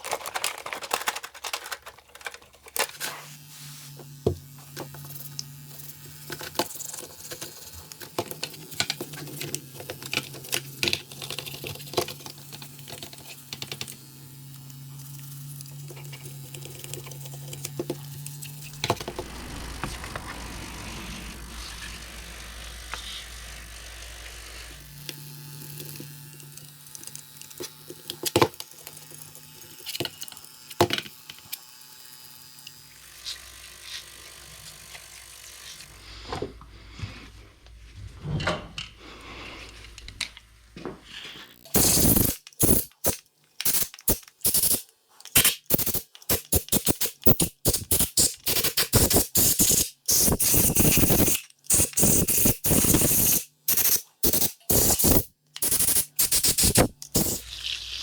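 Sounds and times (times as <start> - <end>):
small parts clicking: 0.0 - 3.0, 41.5 - 58.0
short hissing air blasts: 41.7 - 42.9, 43.6 - 44.8, 45.4 - 57.4.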